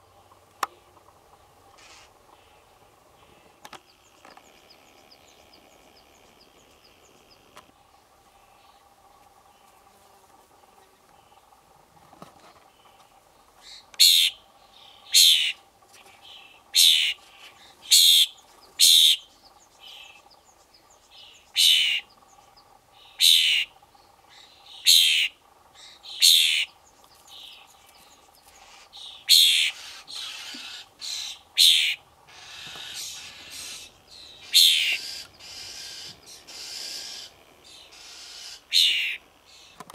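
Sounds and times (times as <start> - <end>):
fledgling bird rasping begging calls: 1.3 - 7.6, 13.6 - 15.6, 16.2 - 20.4, 21.1 - 39.8.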